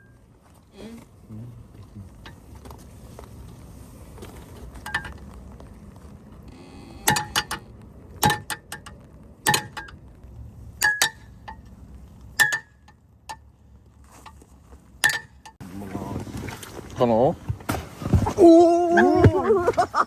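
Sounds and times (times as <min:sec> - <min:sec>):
low steady background noise: 0:00.0 - 0:20.0.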